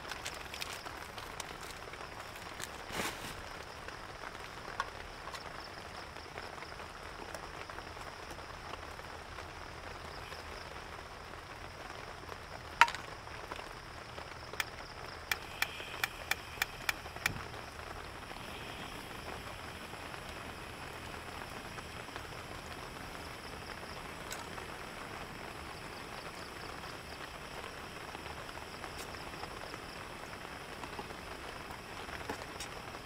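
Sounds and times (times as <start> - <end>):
steady rain falling: 0.0 - 33.0
sharp clicks: 15.3 - 17.5.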